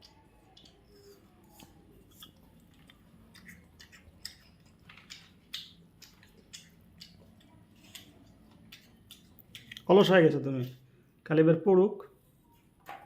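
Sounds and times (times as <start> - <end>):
parrot chewing food: 0.0 - 10.1.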